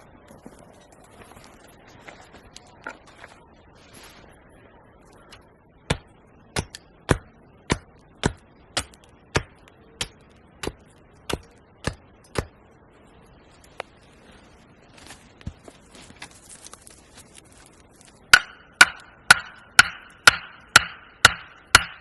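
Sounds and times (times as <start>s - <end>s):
axe striking wood: 5.9s - 12.6s, 18.3s - 22.0s.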